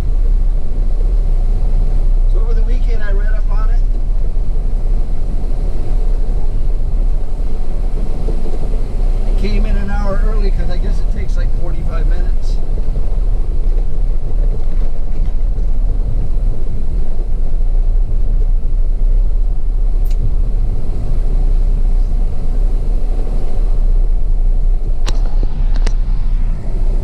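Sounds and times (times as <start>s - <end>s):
truck engine rumbling: 0.0s - 27.0s
sharp clicks: 20.0s - 20.3s.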